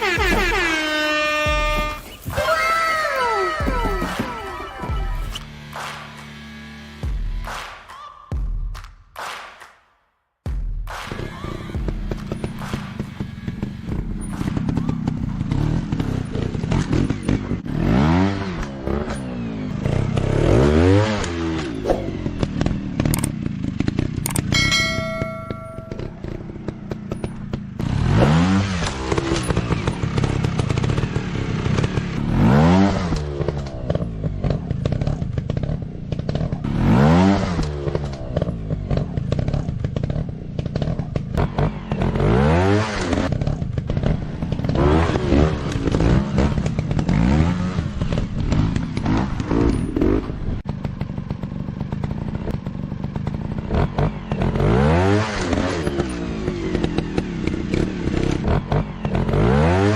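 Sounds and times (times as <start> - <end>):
dirt bike engines revving: 0.0 - 7.1, 11.1 - 59.9
constant clatter: 11.7 - 17.8, 21.2 - 36.8, 37.4 - 59.5.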